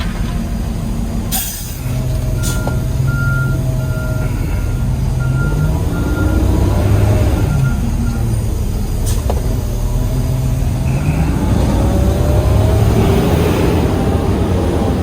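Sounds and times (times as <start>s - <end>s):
diesel engine drone: 0.0s - 15.0s
air hiss: 1.3s - 2.7s
backup alarm beeping: 2.3s - 8.4s.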